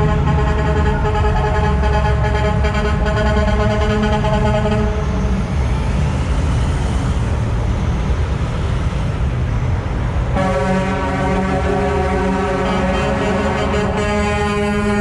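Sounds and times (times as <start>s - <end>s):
truck air horn chord: 0.0s - 5.0s, 10.4s - 15.0s
heavy trucks rumbling past: 0.0s - 15.0s.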